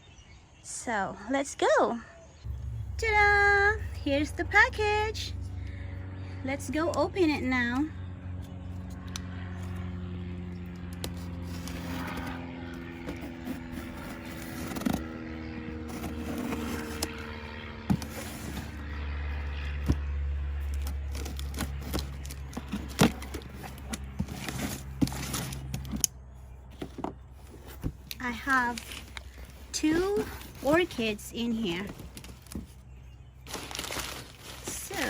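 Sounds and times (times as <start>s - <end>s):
steady low hum: 2.2s - 35.0s
cardboard box being opened: 10.9s - 18.9s, 20.6s - 26.0s, 26.7s - 32.9s, 33.5s - 35.0s.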